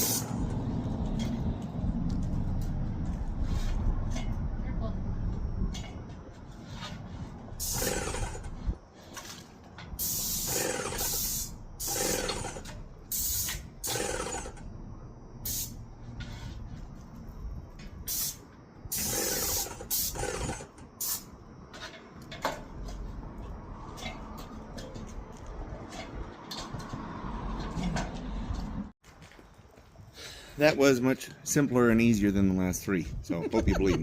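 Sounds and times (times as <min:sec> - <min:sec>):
paint spray gun hissing: 0:00.0 - 0:00.4, 0:07.6 - 0:08.2, 0:10.0 - 0:12.4, 0:13.1 - 0:14.1, 0:15.5 - 0:15.8, 0:18.1 - 0:20.2
low wind rumble: 0:00.0 - 0:10.0, 0:14.6 - 0:19.0, 0:31.8 - 0:34.0.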